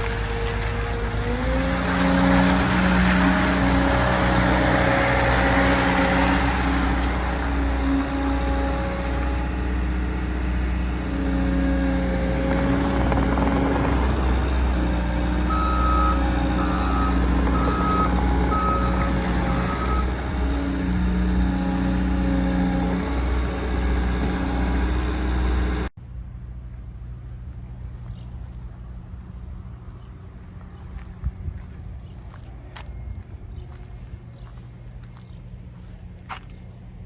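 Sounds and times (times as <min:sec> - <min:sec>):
diesel engine running: 0:00.0 - 0:26.0
backup alarm beeping: 0:13.1 - 0:25.9.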